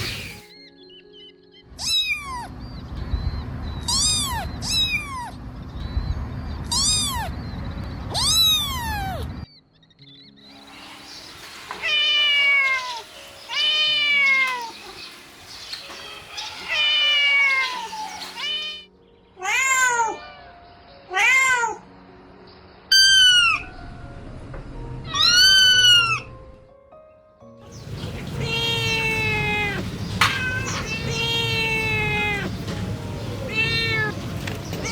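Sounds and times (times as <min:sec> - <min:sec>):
kitten meowing: 0:01.8 - 0:02.5, 0:03.9 - 0:05.3, 0:16.5 - 0:18.8, 0:25.1 - 0:26.3, 0:28.0 - 0:32.6, 0:33.4 - 0:34.2.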